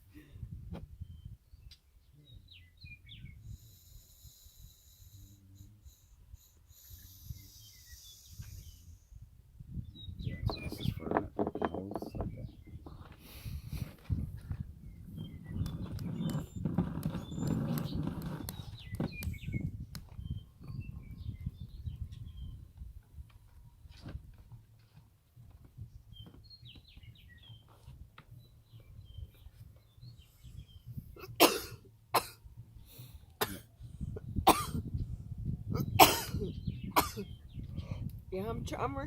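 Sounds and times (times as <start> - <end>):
small chirps: 3.3 - 9.2, 15.2 - 20.8
person coughing: 31.2 - 32.4, 33.4 - 33.7, 34.5 - 34.8, 35.7 - 37.3.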